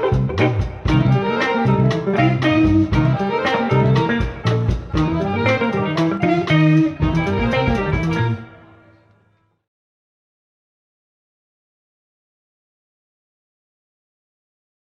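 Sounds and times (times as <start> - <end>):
jazz-funk band playing: 0.0 - 8.7
electric guitar: 0.0 - 9.0.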